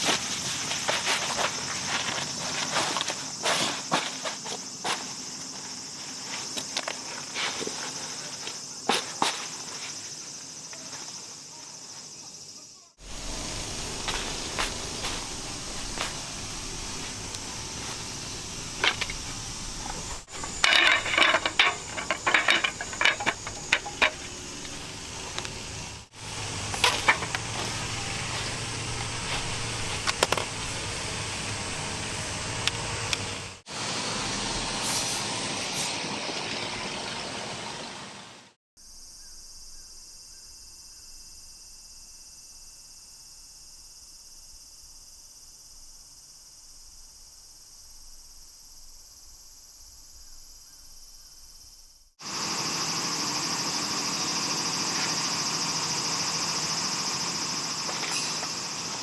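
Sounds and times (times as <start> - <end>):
insect chorus: 0.0 - 33.6, 38.8 - 59.0
clattering handling noises: 19.8 - 24.8.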